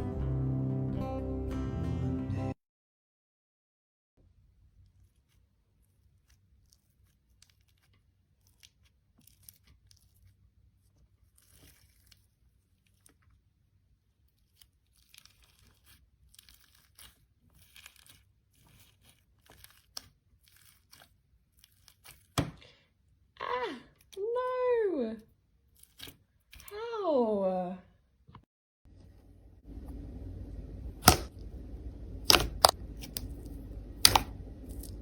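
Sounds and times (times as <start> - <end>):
slime crackling and tearing: 6.2 - 10.5, 11.2 - 13.5, 14.2 - 22.4, 25.7 - 26.7, 31.0 - 31.3, 32.2 - 35.0
low steady hum: 28.9 - 35.0.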